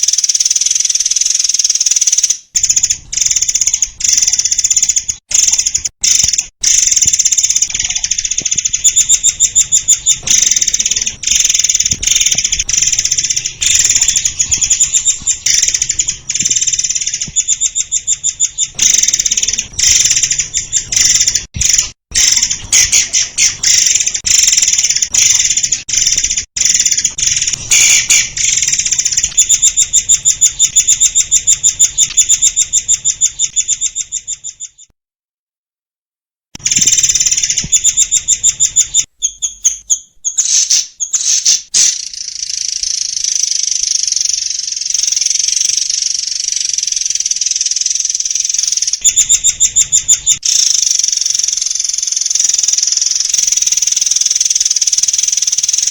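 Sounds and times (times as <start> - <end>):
bird singing rapid trills: 0.0 - 34.9, 36.6 - 55.9.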